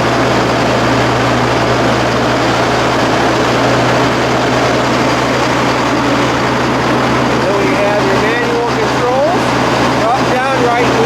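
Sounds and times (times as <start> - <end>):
diesel truck engine running: 0.0 - 11.0
rushing noise: 0.0 - 11.0.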